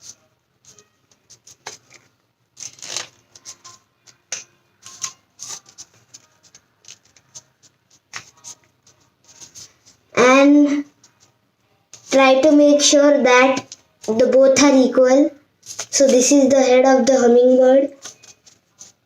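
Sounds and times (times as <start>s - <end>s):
paper crinkling and rustling: 0.6s - 10.0s, 15.6s - 16.2s, 18.0s - 19.0s.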